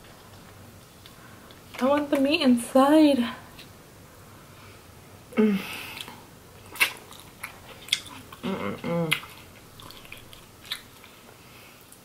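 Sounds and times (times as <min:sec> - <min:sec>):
person humming: 0:05.3 - 0:06.0, 0:08.4 - 0:09.4.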